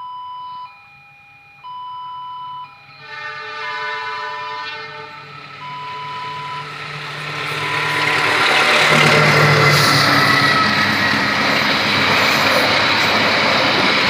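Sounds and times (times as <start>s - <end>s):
level crossing warning signal: 0.0s - 14.0s
locomotive horn: 2.8s - 12.7s
train rumble: 3.0s - 14.0s.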